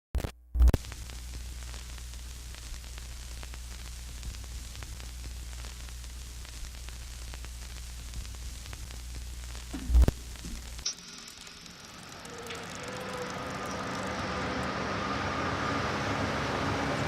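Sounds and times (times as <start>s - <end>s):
faint crackles: 0.2s - 14.8s
static hiss: 0.2s - 15.0s
low electrical hum: 0.8s - 17.0s
loud thump: 9.7s - 10.7s.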